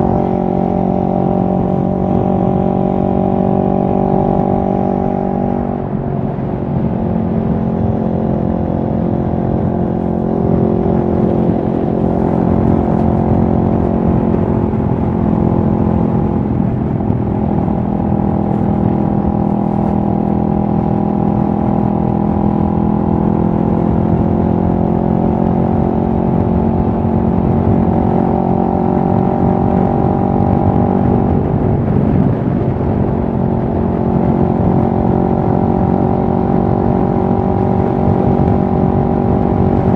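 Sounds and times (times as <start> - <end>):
motorcycle engine running steadily: 0.0 - 39.9.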